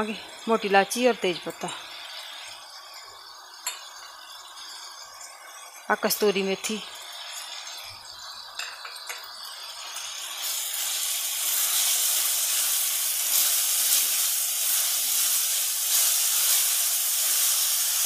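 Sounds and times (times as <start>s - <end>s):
masala sizzling in oil: 0.0s - 18.0s.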